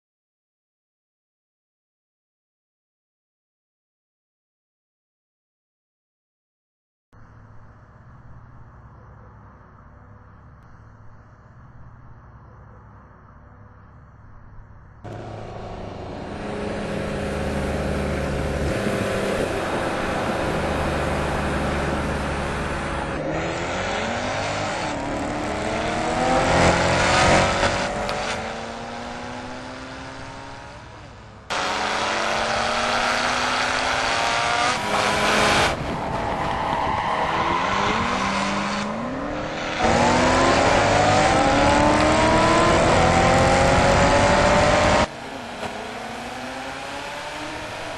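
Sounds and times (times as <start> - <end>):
car engines revving and accelerating: 15.1 - 47.9.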